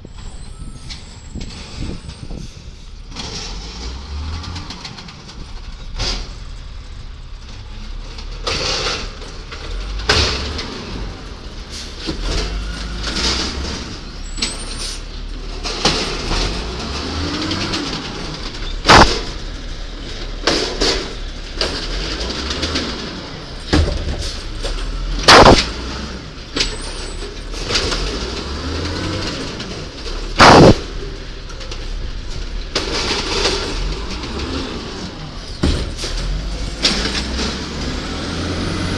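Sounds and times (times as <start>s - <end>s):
diesel engine rumbling: 0.0s - 38.9s
sharp bangs: 18.8s - 19.4s, 25.3s - 25.8s, 30.4s - 31.0s.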